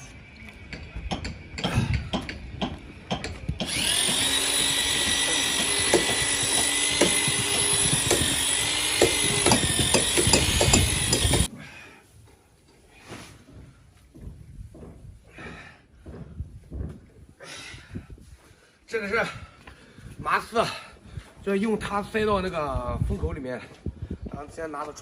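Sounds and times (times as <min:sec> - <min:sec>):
knocks and clatter: 0:00.6 - 0:11.5
electric drill mixing: 0:03.1 - 0:11.5.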